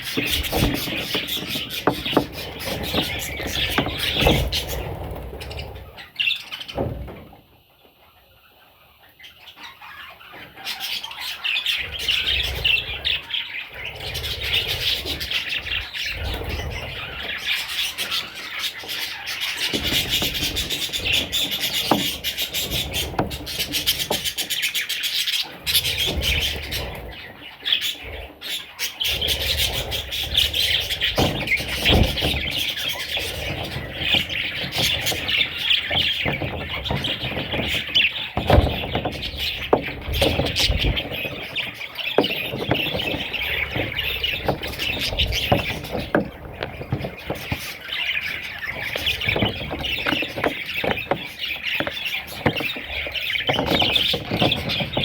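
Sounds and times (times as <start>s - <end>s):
budgerigars chattering and warbling: 0.0s - 7.1s, 7.8s - 55.0s.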